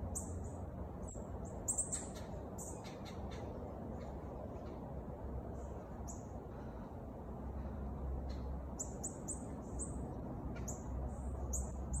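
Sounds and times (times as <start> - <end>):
bird chirping: 0.0 - 4.8, 8.2 - 12.0
low steady rumble: 0.0 - 12.0.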